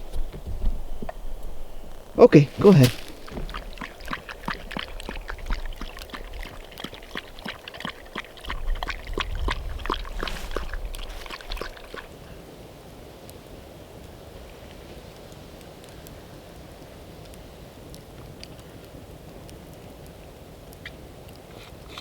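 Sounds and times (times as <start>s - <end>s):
dog crunching food: 2.4s - 8.6s, 9.9s - 12.1s.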